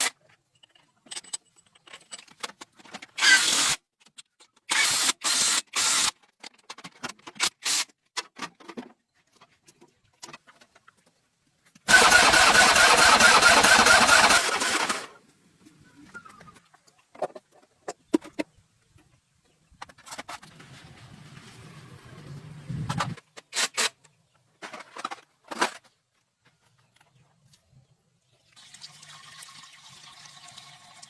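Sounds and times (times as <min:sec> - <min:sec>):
car engine cranking: 0:11.9 - 0:15.1.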